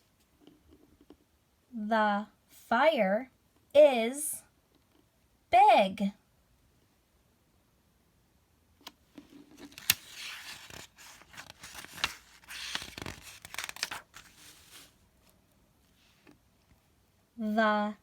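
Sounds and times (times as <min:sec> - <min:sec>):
paper rustling: 0:09.2 - 0:15.4
page turning clicks: 0:09.6 - 0:14.6.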